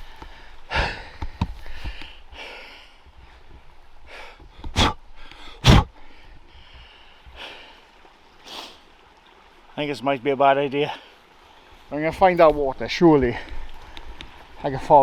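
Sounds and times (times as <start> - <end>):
man breathing hard: 0.0 - 3.3
man gasping: 0.7 - 2.8, 4.1 - 6.2.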